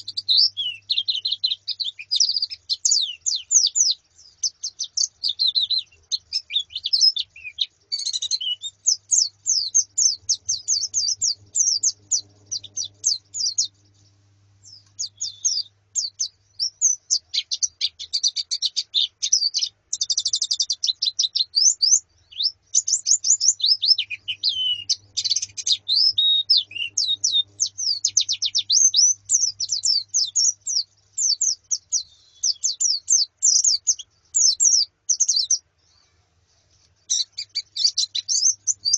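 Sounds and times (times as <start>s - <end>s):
flock of birds chirping: 0.0s - 38.9s.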